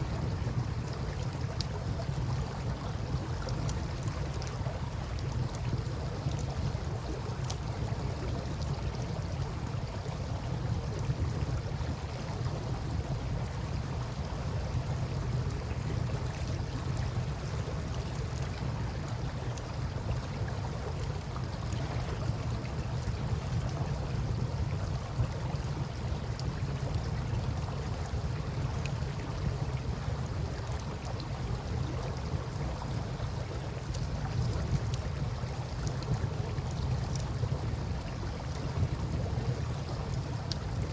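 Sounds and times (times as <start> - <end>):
campfire crackling: 22.4 - 40.9.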